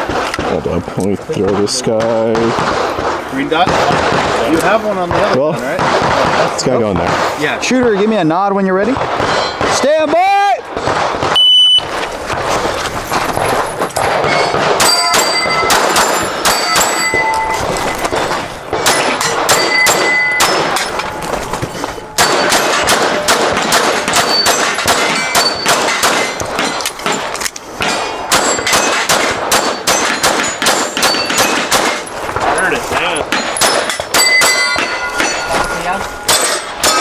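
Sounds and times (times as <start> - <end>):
rapid handgun shots: 0.0 - 35.5, 36.1 - 37.0
steel targets ringing: 9.2 - 9.9, 13.3 - 37.0
shot timer beep: 11.4 - 11.8.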